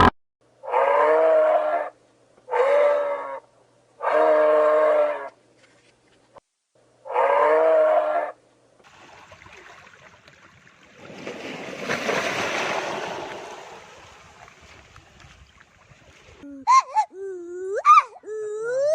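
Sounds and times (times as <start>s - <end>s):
farm animal call: 0.6s - 5.4s, 7.0s - 8.4s.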